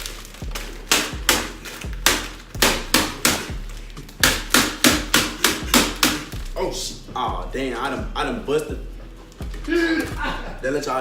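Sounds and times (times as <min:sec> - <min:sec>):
chips crunching in crinkling bag: 0:00.0 - 0:00.9
hand pounding bag on countertop: 0:00.0 - 0:06.6.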